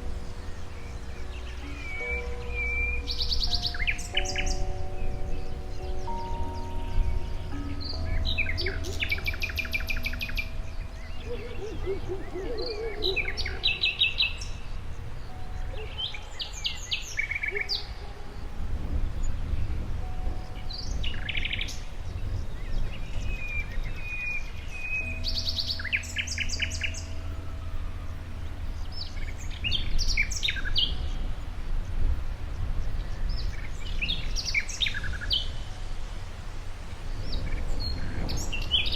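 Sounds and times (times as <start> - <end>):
songbirds chirping and trilling: 0.0 - 38.9
low rumble: 18.2 - 34.4.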